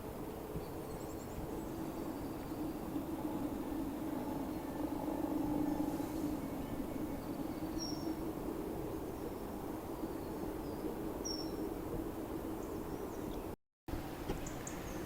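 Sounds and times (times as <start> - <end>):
steady low drone: 0.0 - 13.4.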